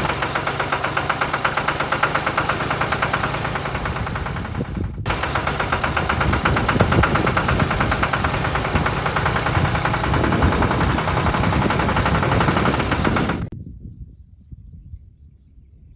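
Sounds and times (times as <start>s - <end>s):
small engine running: 0.0s - 13.5s.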